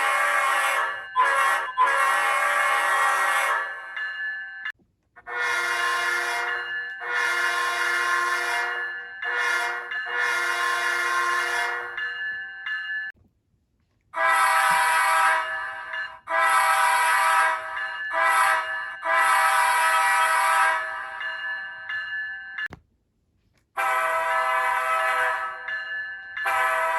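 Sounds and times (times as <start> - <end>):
locomotive air horn through small speaker: 5.2 - 12.0, 14.2 - 15.6, 16.3 - 17.6, 18.2 - 20.8, 23.8 - 25.6, 26.5 - 26.9
multi-chime horn: 5.4 - 12.1, 23.8 - 25.8, 26.4 - 26.9.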